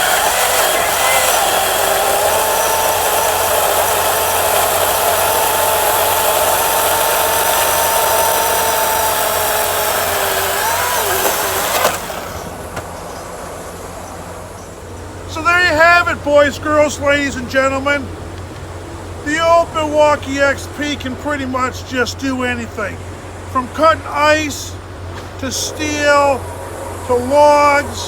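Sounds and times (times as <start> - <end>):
chainsaw running: 0.0 - 12.9
chainsaw stopping click: 0.0 - 12.9.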